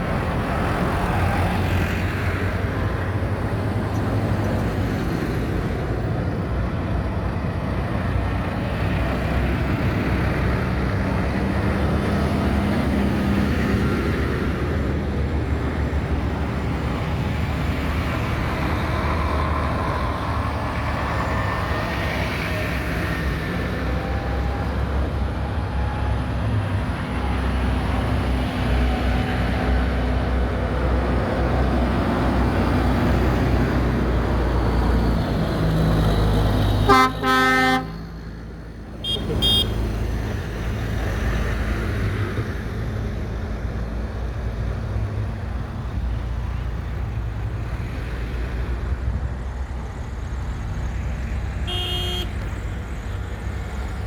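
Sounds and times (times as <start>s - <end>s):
tractor engines running: 0.0s - 54.0s
horn toots: 36.9s - 38.0s, 39.0s - 39.8s, 51.6s - 52.4s.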